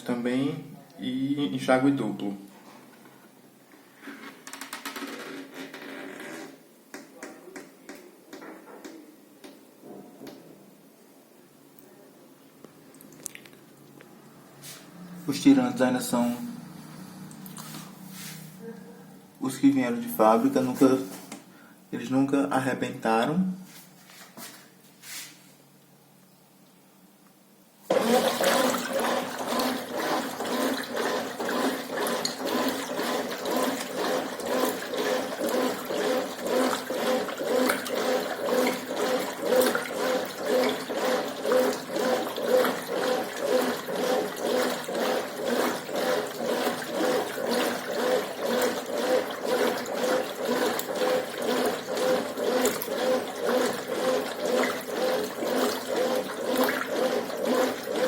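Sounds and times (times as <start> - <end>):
washing machine motor hum: 14.2 - 21.3, 27.9 - 58.0
water sloshing: 16.9 - 18.6, 27.9 - 58.0.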